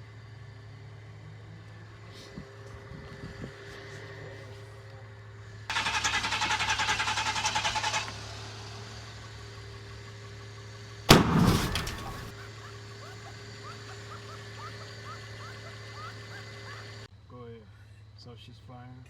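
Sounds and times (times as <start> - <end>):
starter cranking engine: 5.7 - 12.7
loud engine bang: 11.1 - 12.5.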